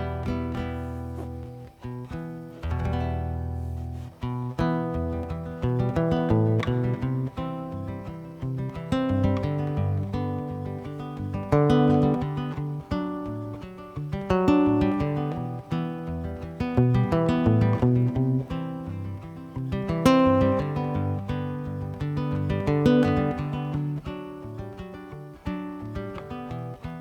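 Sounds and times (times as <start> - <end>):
acoustic guitar strummed chords: 0.0 - 27.0.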